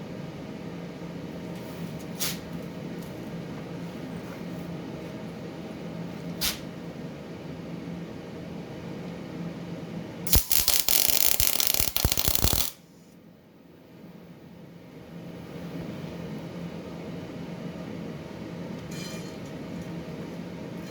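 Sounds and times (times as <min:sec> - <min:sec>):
welding arc crackling: 0:10.3 - 0:12.8.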